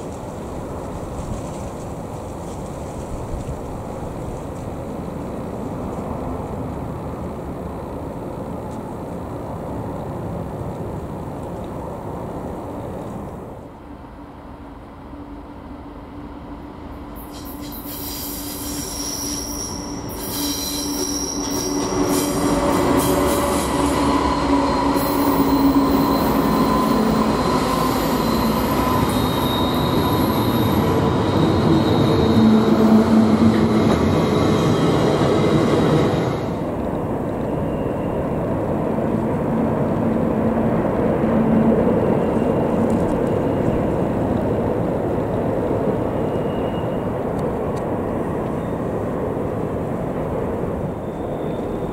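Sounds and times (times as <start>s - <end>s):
freight train rumble: 0.0s - 51.9s
train wheels squealing on rails: 17.0s - 39.4s, 41.2s - 44.8s, 45.8s - 47.6s, 48.5s - 49.0s, 50.8s - 51.9s.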